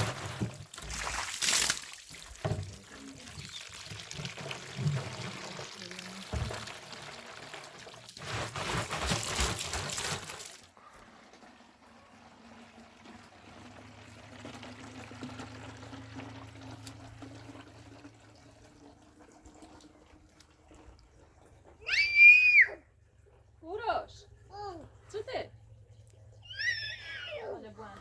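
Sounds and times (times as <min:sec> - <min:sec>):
liquid being poured: 0:00.0 - 0:21.9.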